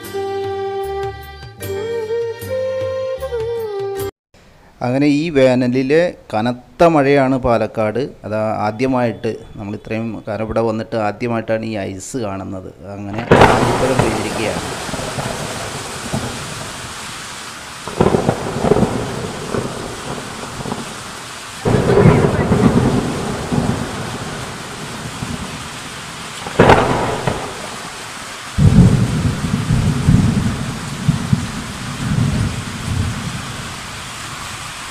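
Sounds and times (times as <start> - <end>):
low rumbling thunder bursts: 13.2 - 17.2, 17.8 - 34.6
heavy rain with hail: 13.2 - 34.9.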